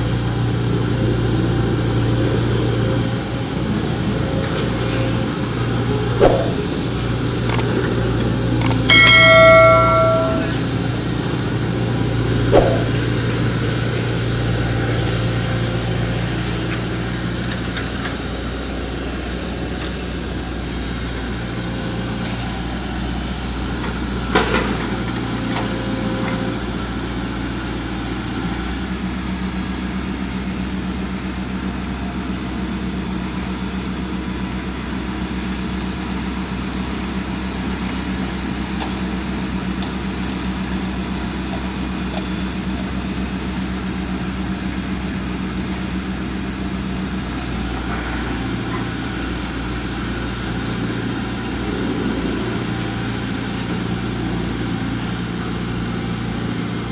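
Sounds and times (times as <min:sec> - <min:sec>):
heavy diesel engine running: 0:00.0 - 0:56.9
sharp metallic knock: 0:06.2 - 0:06.6, 0:08.9 - 0:10.6, 0:12.5 - 0:13.0.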